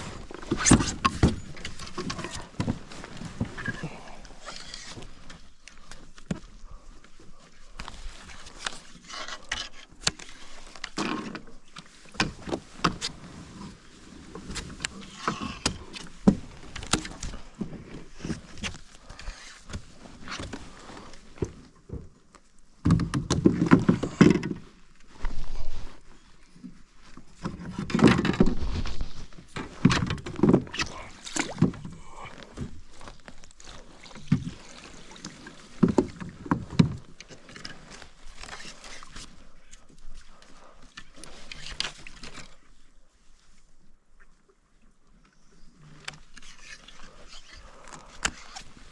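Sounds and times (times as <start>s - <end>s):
rustling and sloshing: 0.0s - 48.9s.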